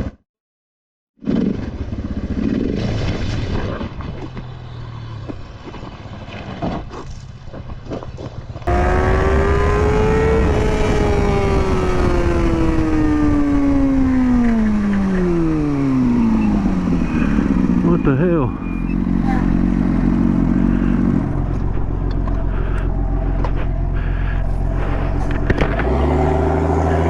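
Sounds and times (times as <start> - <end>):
road noise: 3.8 - 27.0
motorcycle engine: 8.7 - 27.0.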